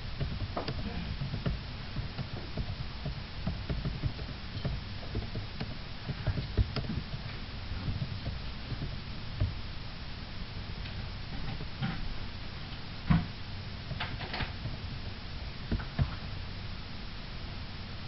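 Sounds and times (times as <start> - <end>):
light clicks and knocks: 0.1 - 9.6.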